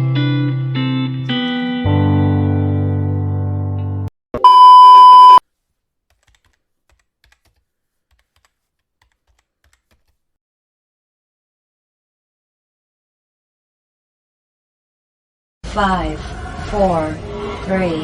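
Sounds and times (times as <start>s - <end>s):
electronic beep: 4.4s - 5.4s.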